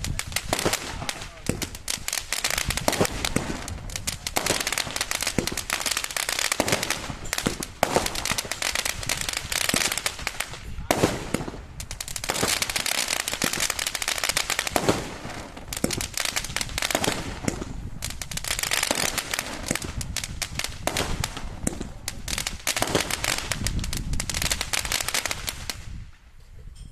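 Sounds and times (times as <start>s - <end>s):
loud firework bangs: 0.0s - 26.0s
fireworks crackling: 0.0s - 26.3s.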